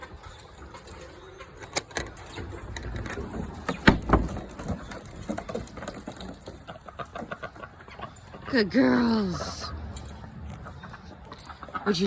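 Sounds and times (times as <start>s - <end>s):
door banging: 2.8s - 5.1s.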